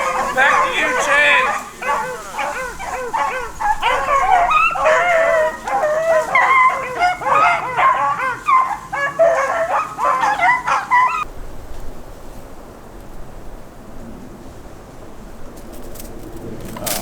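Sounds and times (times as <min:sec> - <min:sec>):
dogs baying: 0:00.0 - 0:11.3.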